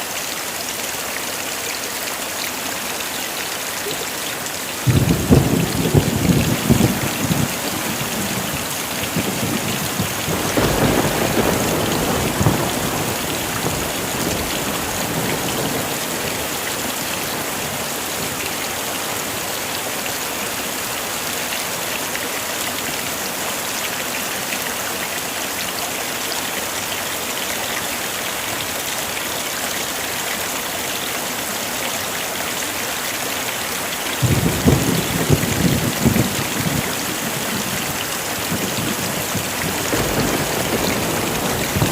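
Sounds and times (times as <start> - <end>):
heavy rain falling: 0.0 - 41.9
thunder rumbling: 4.8 - 18.4, 34.2 - 41.9.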